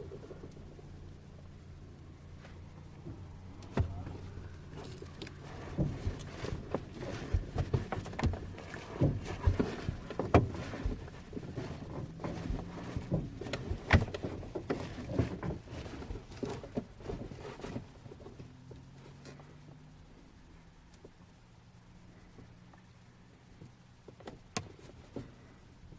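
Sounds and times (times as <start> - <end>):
faint low hum: 0.0 - 25.9
knocks clicks and rattles of airframe: 3.0 - 18.9.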